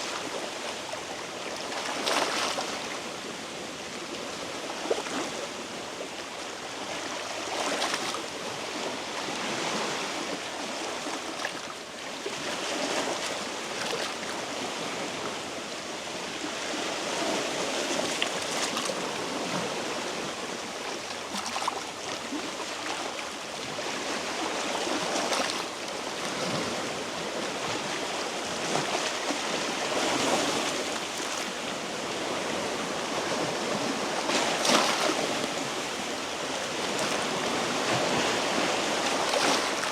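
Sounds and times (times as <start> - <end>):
sea waves washing over rocks: 16.2 - 39.9.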